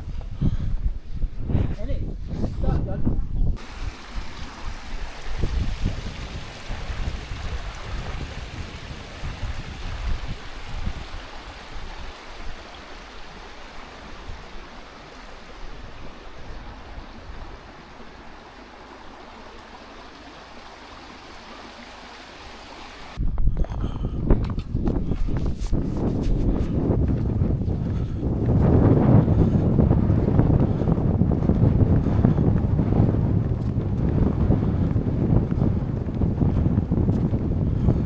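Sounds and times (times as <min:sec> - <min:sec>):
wind buffeting microphone: 0:00.0 - 0:21.3, 0:23.1 - 0:38.0
stream running over rocks: 0:03.6 - 0:23.2.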